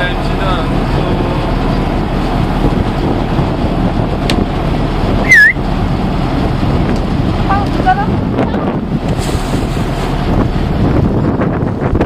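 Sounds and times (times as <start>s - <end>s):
wind buffeting microphone: 0.0s - 12.0s
high-pitched call with dipping pitch: 5.2s - 5.6s.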